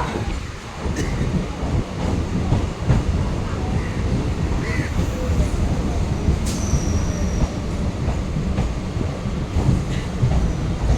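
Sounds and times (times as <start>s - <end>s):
train rumbling on rails: 0.0s - 10.9s
high wheel squeal: 4.7s - 7.8s.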